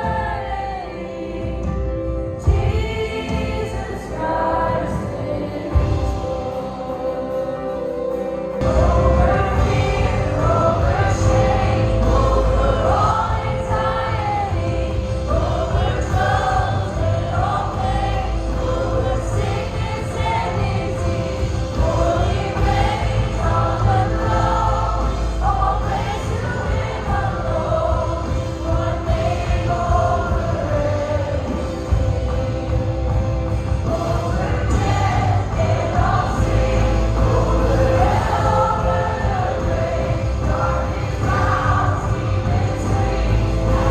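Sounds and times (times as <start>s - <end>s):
bass and drums: 0.0s - 43.9s
group singing worship song: 0.0s - 43.9s.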